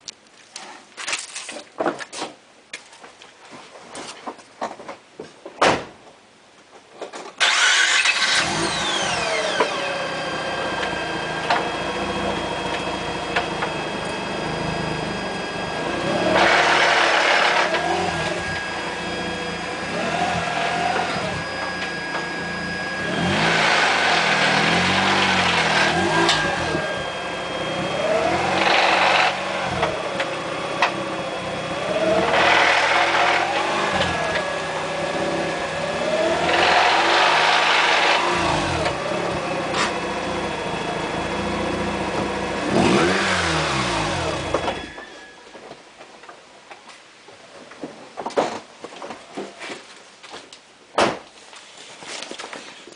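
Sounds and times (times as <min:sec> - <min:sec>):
car engine starting and revving: 0:07.4 - 0:45.2
clutch grinding: 0:10.5 - 0:34.8.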